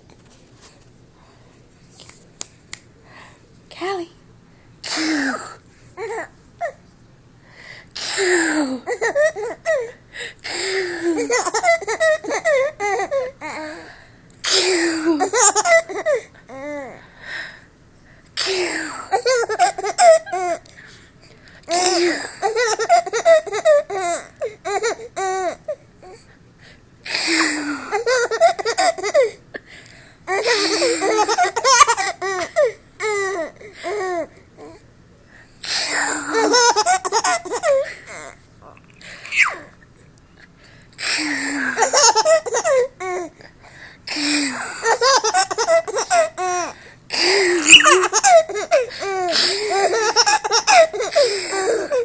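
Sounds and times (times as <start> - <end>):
baby giggling: 11.0 - 13.3, 15.1 - 16.8, 19.1 - 20.6, 21.7 - 25.6, 27.9 - 29.3, 30.3 - 34.3, 36.1 - 38.4, 41.7 - 43.3, 44.5 - 52.0.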